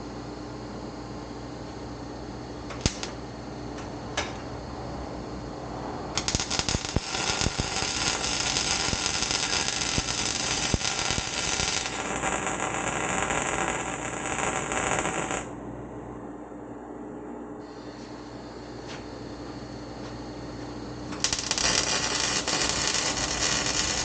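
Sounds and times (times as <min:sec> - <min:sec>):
electric welder arc crackling: 0:02.7 - 0:03.3, 0:06.2 - 0:15.6, 0:21.0 - 0:24.0.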